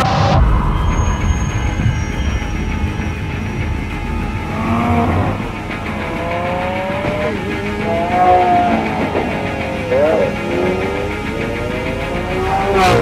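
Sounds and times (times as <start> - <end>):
car engine revving hard: 4.4 - 13.0.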